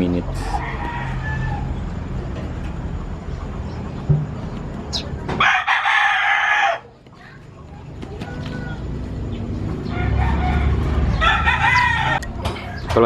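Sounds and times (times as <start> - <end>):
rooster crowing: 0.3 - 2.2, 5.3 - 7.0, 8.2 - 12.8.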